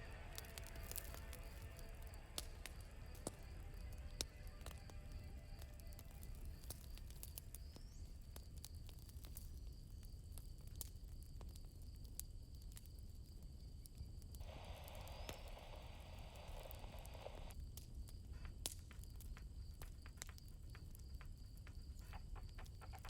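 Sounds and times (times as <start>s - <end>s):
crickets chirring: 0.0s - 10.6s, 14.3s - 23.0s
campfire crackling and popping: 0.0s - 23.0s
rustling hiss: 14.4s - 17.6s.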